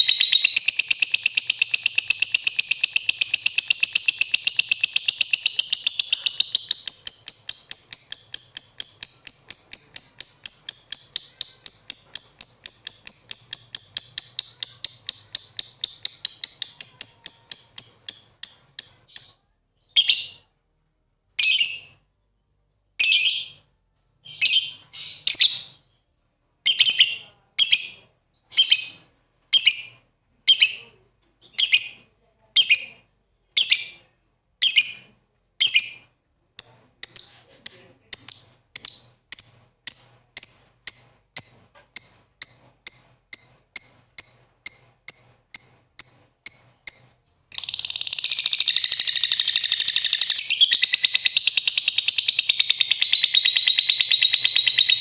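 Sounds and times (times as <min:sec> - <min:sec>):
lovebirds chirping: 0:00.0 - 0:20.4, 0:32.6 - 0:55.0.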